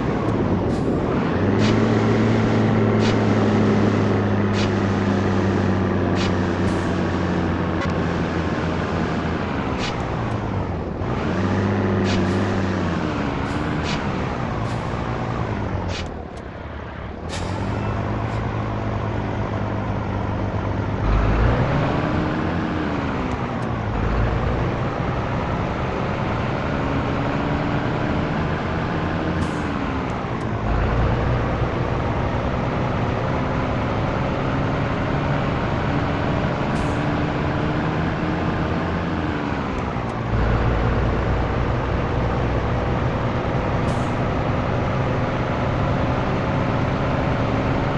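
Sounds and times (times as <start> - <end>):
diesel truck engine accelerating: 0.0 - 47.9.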